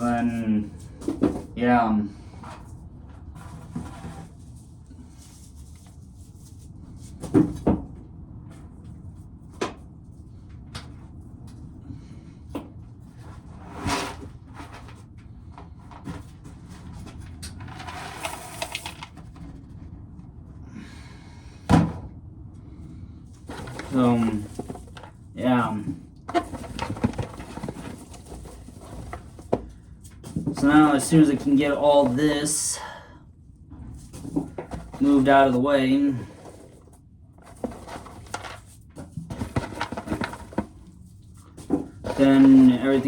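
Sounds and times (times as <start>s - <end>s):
rustling rattle: 17.6s - 19.5s, 23.4s - 25.2s, 26.3s - 30.4s, 37.4s - 43.0s
corn cobs knocking and clattering: 23.5s - 32.6s, 36.4s - 43.0s.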